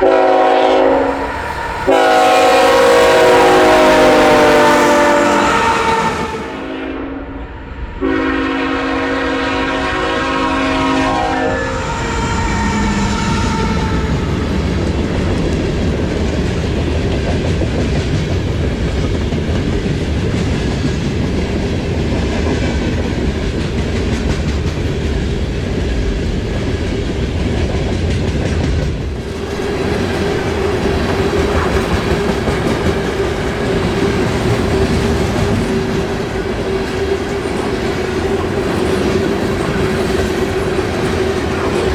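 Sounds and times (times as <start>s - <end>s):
train cars clickety-clack rumble: 0.0s - 6.9s, 8.0s - 41.9s
locomotive horn chord: 0.0s - 14.4s.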